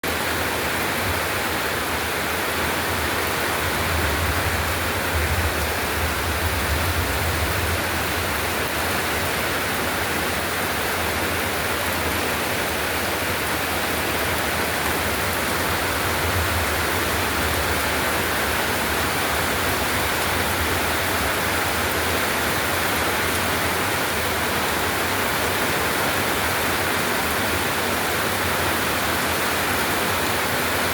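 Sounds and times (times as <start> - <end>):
heavy rain pouring: 0.0 - 30.9
low rumble: 3.5 - 8.8.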